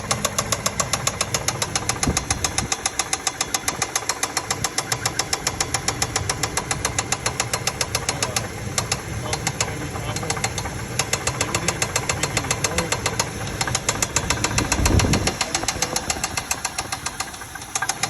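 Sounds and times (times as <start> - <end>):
engine idling with ticking knock: 0.0 - 18.0.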